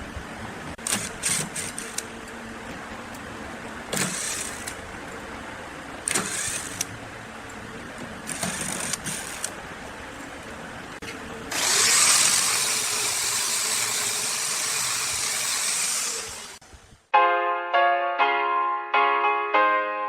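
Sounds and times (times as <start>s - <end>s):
workshop machinery running: 0.0s - 16.7s.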